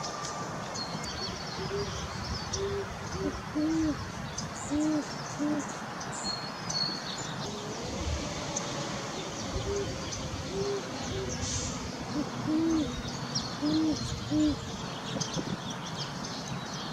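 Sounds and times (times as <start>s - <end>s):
owls hooting: 0.0s - 4.0s, 4.6s - 5.7s, 7.5s - 14.7s
small birds chirping: 0.0s - 16.9s.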